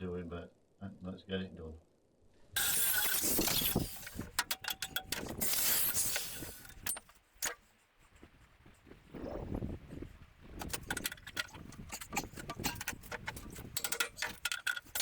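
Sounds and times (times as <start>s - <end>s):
angle grinder grinding: 2.6s - 7.6s, 10.6s - 15.0s
metallic knocks and clatter: 2.6s - 7.6s, 10.6s - 15.0s.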